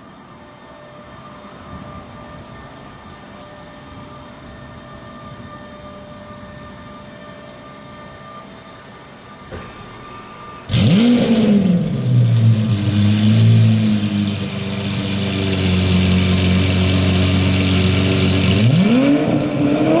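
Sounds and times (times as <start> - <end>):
car engine starting and idling: 10.1 - 20.0.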